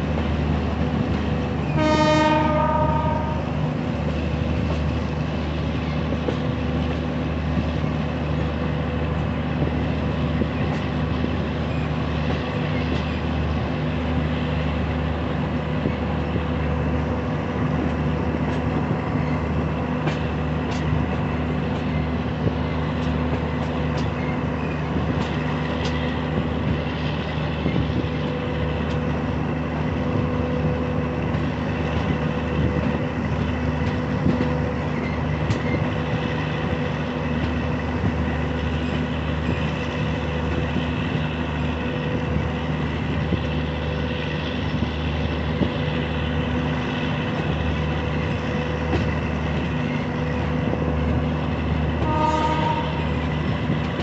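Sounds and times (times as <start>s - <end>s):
train coaches rumbling on rails: 0.0s - 54.0s
train horn blast: 1.7s - 3.6s, 52.0s - 53.2s
wheels clicking over rail joints: 17.8s - 29.4s.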